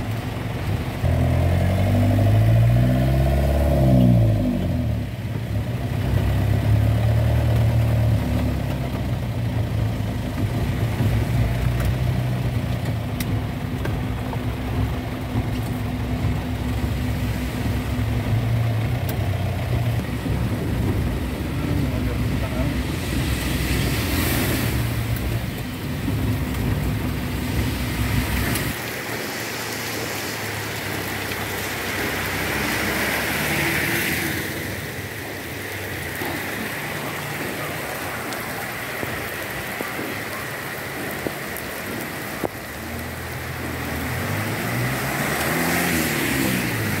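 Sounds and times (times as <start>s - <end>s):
car driving through rain: 0.0s - 47.0s
heavy rain on a wet road: 0.0s - 47.0s
vehicle engine rising and falling: 0.0s - 47.0s
strong low rumble: 9.1s - 28.8s.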